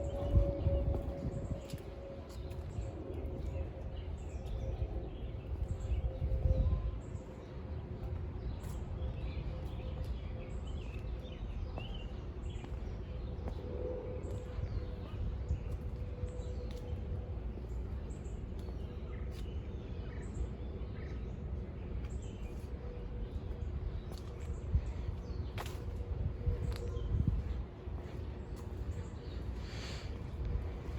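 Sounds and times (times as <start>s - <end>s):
low rumble: 0.0s - 19.2s
faint hum: 0.0s - 30.9s.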